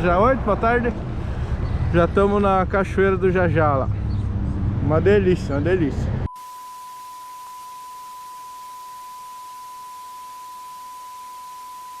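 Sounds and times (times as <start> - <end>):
electronic test tone: 6.3 - 12.0.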